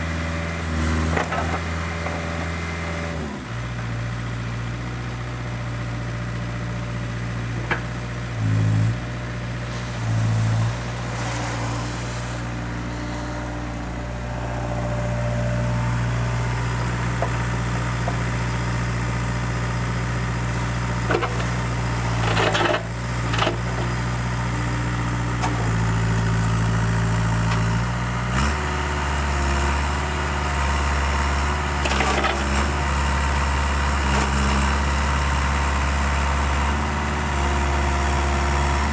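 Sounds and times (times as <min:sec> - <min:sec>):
excavator diesel engine running: 0:00.0 - 0:38.9
scraping clatter: 0:22.2 - 0:23.9.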